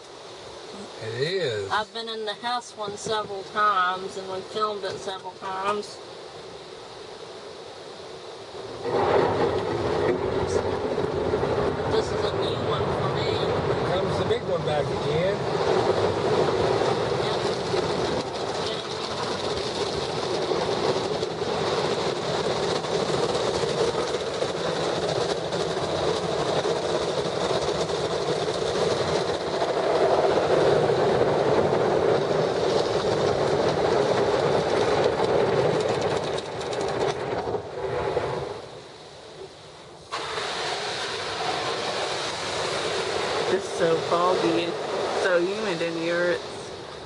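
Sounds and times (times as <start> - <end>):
water spraying: 11.9 - 33.8, 40.0 - 46.8.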